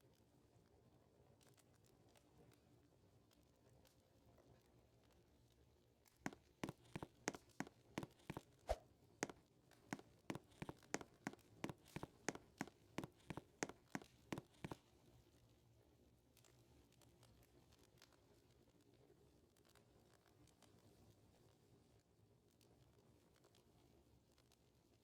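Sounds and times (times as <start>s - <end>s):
footsteps: 6.6s - 14.8s.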